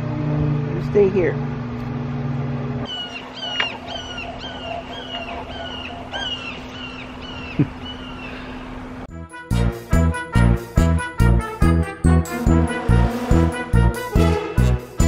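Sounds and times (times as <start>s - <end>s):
bird calling: 2.9s - 9.0s
music: 9.1s - 15.0s.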